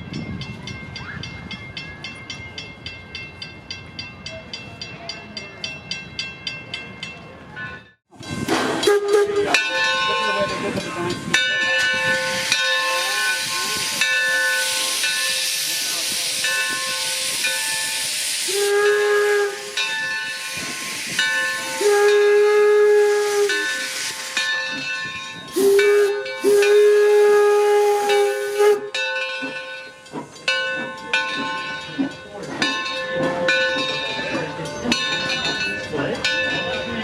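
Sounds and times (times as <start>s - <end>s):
steam locomotive hissing: 8.1s - 37.0s
steam whistle blasts: 8.5s - 9.8s, 12.2s - 24.4s, 25.5s - 29.1s.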